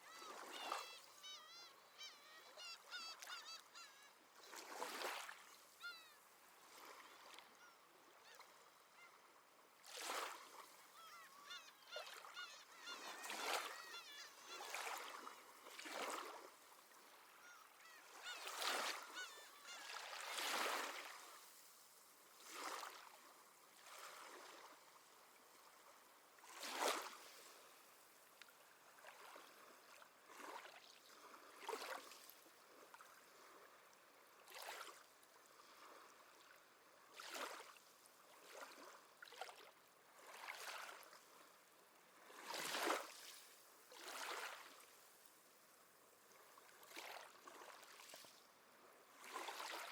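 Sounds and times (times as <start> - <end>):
seabirds honking cries: 0.0 - 4.2, 11.0 - 15.2, 17.4 - 20.2
gentle sea waves: 0.0 - 49.9.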